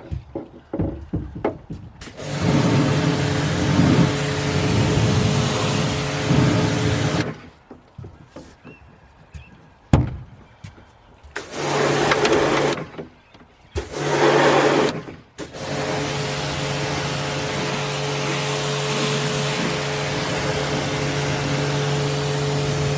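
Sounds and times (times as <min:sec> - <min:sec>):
pressure washer motor hum: 0:02.0 - 0:07.5, 0:11.4 - 0:13.0, 0:13.8 - 0:22.9
pressure washer spraying water: 0:02.0 - 0:07.5, 0:11.4 - 0:12.9, 0:13.8 - 0:22.9.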